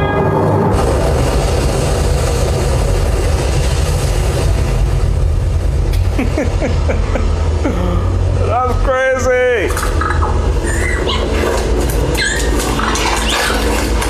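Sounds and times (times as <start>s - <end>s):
music: 0.0s - 1.4s
mechanical rumble with heavy bass: 0.6s - 14.0s.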